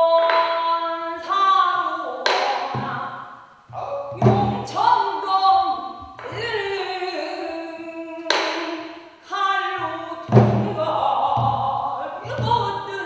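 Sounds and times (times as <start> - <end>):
barrel drum thumps: 3.7 - 4.8, 10.3 - 12.7.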